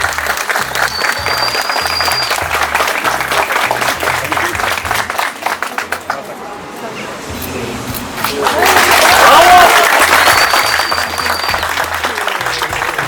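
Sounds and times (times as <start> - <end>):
guests applauding: 0.0 - 6.4, 8.2 - 13.0
long high whistle: 0.8 - 2.5, 10.0 - 12.0.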